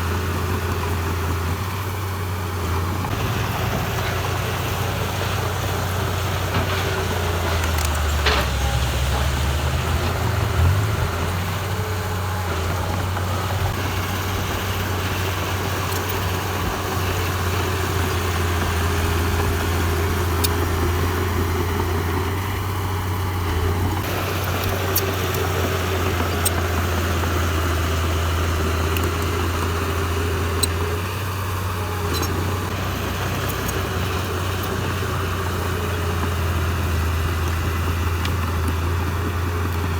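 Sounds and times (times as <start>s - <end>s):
diesel machinery engine running: 0.0s - 39.9s
sharp ticks: 18.6s - 21.2s, 32.1s - 32.4s.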